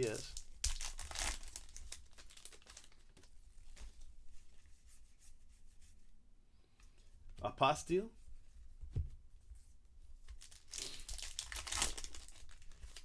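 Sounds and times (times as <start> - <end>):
foil wrapper crinkling: 0.0 - 4.0, 10.3 - 13.0.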